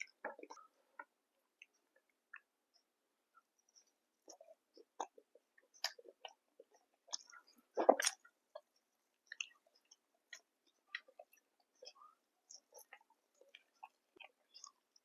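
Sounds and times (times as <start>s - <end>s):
chewing mouth smacks: 4.2s - 8.6s.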